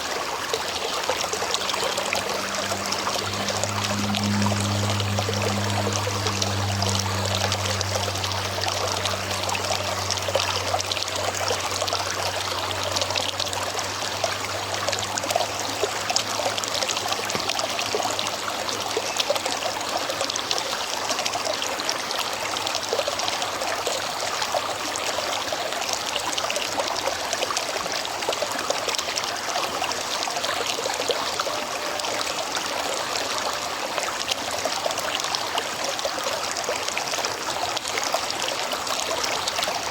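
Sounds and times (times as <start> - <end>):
river water over rocks: 0.0 - 39.9
low hum: 0.5 - 20.0.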